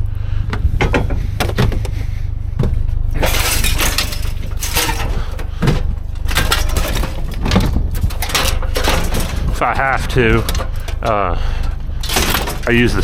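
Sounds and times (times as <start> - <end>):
low rumble: 0.0 - 13.0
scrap metal clattering and crashing: 3.1 - 13.0
glass breaking: 3.2 - 5.4, 6.2 - 9.5, 12.0 - 13.0.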